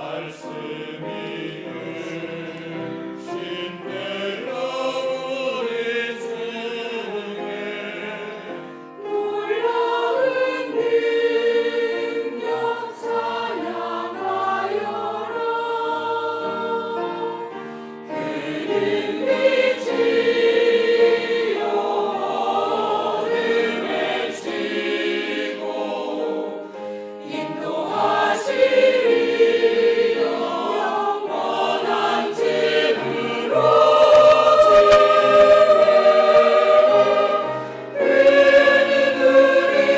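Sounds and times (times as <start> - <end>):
church choir singing: 0.0 - 39.9.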